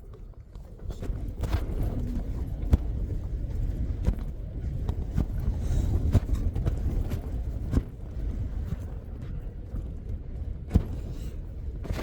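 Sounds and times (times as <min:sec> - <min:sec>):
low rumble of wind: 0:00.0 - 0:12.0.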